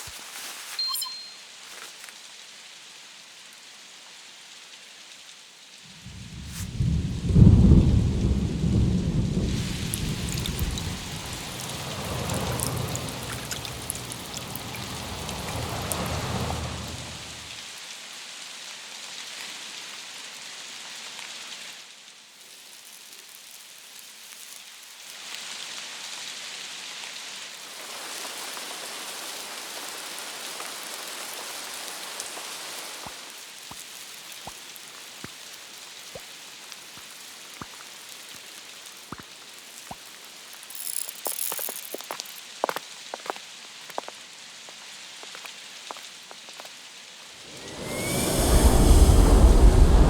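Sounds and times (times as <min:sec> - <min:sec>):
rain hiss: 0:00.0 - 0:18.0, 0:19.2 - 0:50.0
small clicks: 0:40.6 - 0:42.5.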